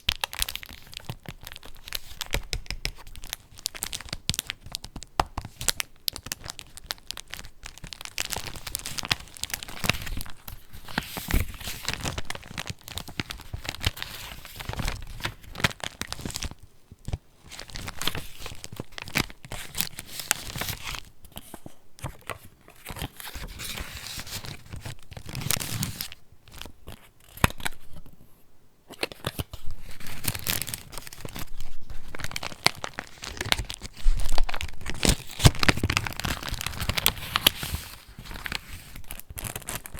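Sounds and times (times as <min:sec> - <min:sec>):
paper pages rustling: 0:17.5 - 0:27.9, 0:28.9 - 0:39.9.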